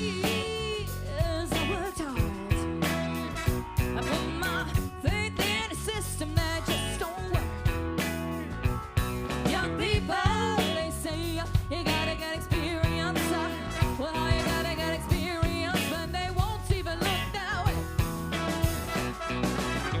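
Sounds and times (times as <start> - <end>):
funk band playing: 0.0 - 20.0
lead melody: 0.0 - 20.0
drum beat: 18.0 - 20.0.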